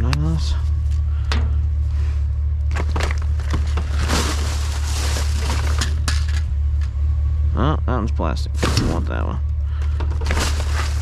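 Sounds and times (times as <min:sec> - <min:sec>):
low rumble: 0:00.0 - 0:11.0
junk knocking and clattering: 0:01.2 - 0:01.8, 0:02.6 - 0:06.9, 0:08.6 - 0:11.0
rustling scrape: 0:03.1 - 0:06.1, 0:10.2 - 0:11.0.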